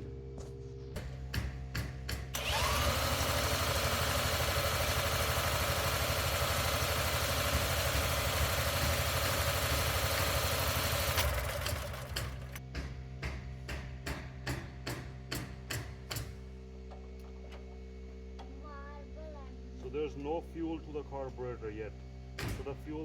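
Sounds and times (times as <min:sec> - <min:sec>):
engine cranking without starting: 0:02.3 - 0:12.6.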